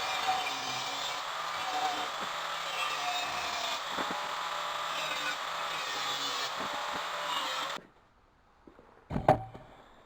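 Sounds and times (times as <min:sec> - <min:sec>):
power tool cutting steel pipe: 0:00.0 - 0:07.8.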